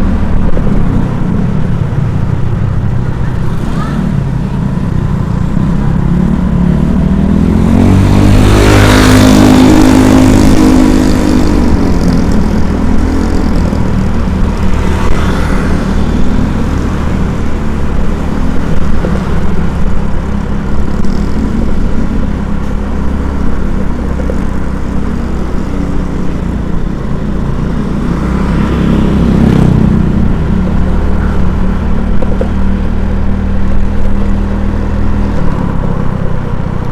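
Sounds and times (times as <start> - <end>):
engine and road noise: 0.0 - 36.9
vehicle passing by: 5.8 - 19.8, 28.0 - 32.9.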